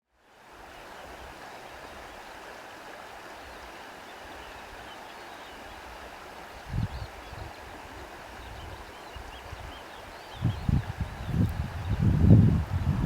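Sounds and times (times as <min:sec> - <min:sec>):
lake water rushing: 0:00.3 - 0:13.0
low rumble of wind: 0:06.6 - 0:13.0.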